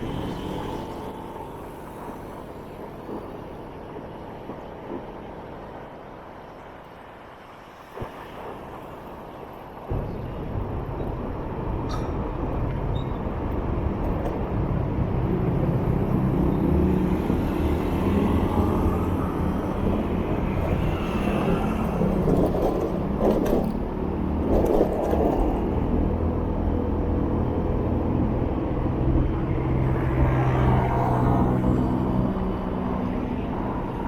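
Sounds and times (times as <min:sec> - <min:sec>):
road and traffic noise: 0:00.0 - 0:34.0.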